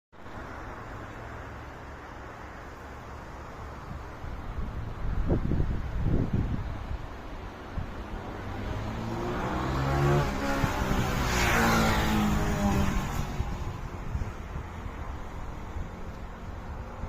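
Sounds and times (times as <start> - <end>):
motor vehicle passing by: 7.8 - 17.0.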